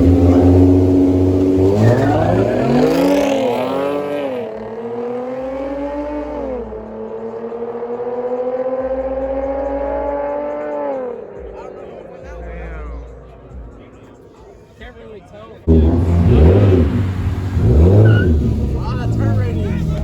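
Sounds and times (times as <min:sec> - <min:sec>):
car engine revving and accelerating: 0:00.0 - 0:11.5, 0:15.7 - 0:20.0.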